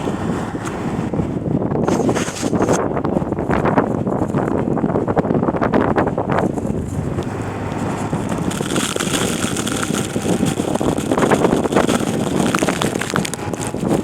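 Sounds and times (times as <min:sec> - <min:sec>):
tyres churning through snow: 0:00.0 - 0:14.0
car engine running: 0:06.1 - 0:14.0.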